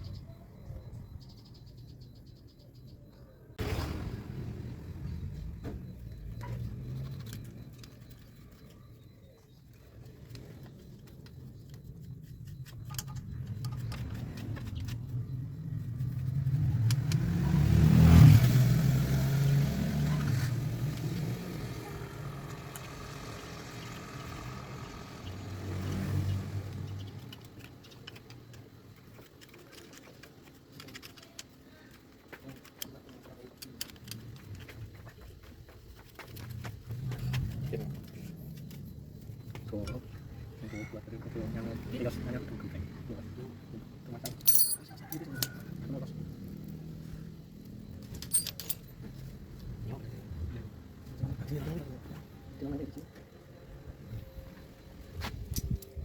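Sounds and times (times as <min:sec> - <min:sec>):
vehicle passing by: 0:15.5 - 0:27.4.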